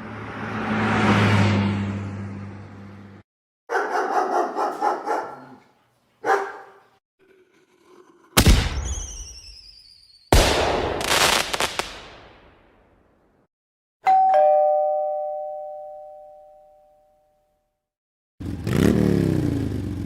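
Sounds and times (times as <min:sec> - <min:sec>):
dog barking: 0:03.7 - 0:07.0
fireworks crackling: 0:10.3 - 0:12.4.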